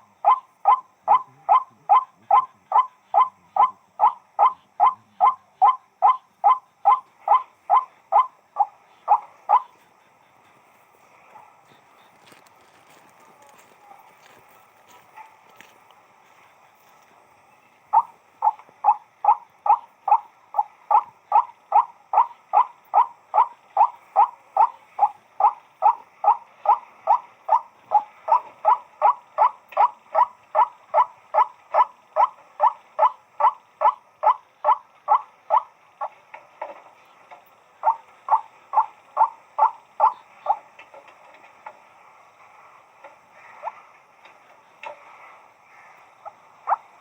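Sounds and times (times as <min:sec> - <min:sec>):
waterhen calling: 0:00.0 - 0:10.6, 0:17.6 - 0:36.2, 0:37.8 - 0:40.9, 0:45.7 - 0:47.0.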